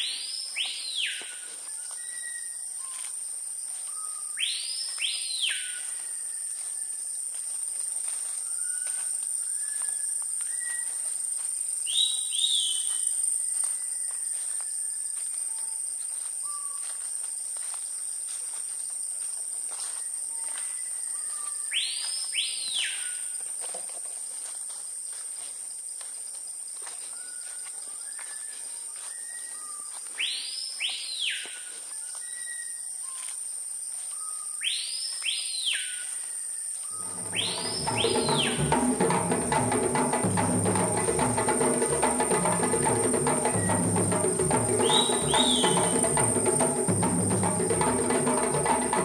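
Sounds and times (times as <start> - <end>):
bird whistled swooping call: 0.0 - 3.1, 3.9 - 6.9, 8.5 - 11.0, 11.9 - 13.1, 27.2 - 33.2, 34.1 - 38.8, 43.4 - 46.3
insects droning: 0.0 - 49.0
birds whistling short notes: 44.8 - 46.1.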